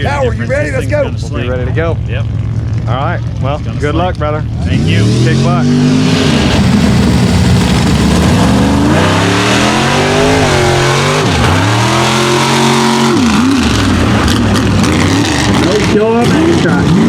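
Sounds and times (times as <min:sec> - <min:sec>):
truck engine accelerating hard: 0:00.0 - 0:17.0.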